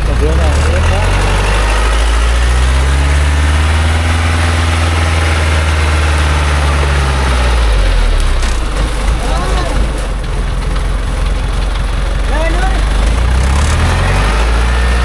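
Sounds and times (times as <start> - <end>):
truck engine running hard: 0.0 - 15.0.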